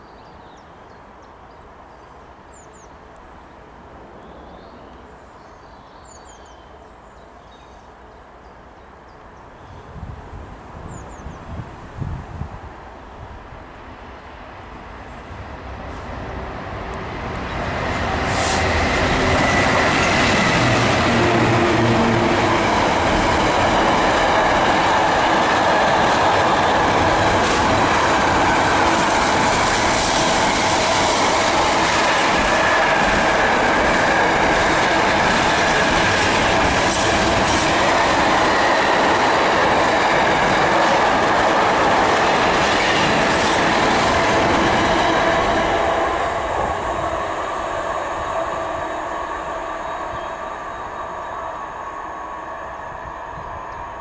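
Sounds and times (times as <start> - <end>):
train rumble and wheel clatter: 6.0 - 54.0
diesel locomotive engine: 11.8 - 54.0.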